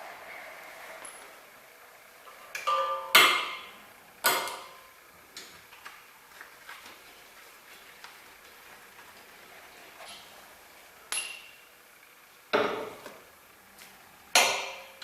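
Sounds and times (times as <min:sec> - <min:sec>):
sharp metallic knocks: 0:02.6 - 0:04.8
metal clink ringing: 0:02.7 - 0:03.2, 0:11.1 - 0:11.6.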